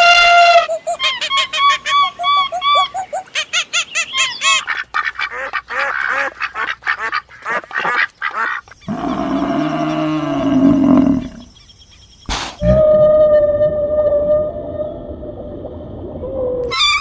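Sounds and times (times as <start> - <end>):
animal calls: 0.0 - 4.7, 5.7 - 11.5.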